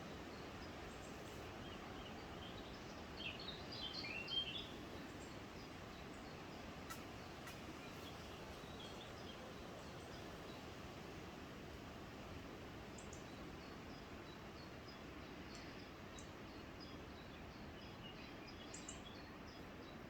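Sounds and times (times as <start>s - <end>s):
faint woodland hiss: 0.0s - 20.0s
small bird chirping: 6.2s - 10.2s.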